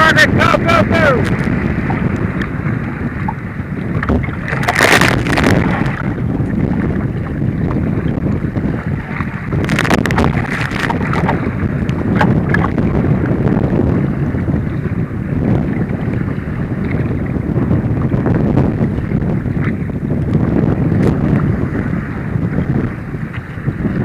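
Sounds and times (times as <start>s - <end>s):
water rushing and splashing: 0.0s - 13.2s
big water splashes: 0.0s - 24.0s
wind buffeting microphone: 0.0s - 24.0s.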